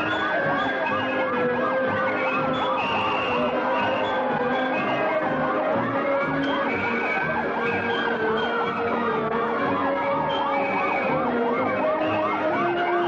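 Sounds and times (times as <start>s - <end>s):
emergency sirens wailing and yelping: 0.0s - 13.0s.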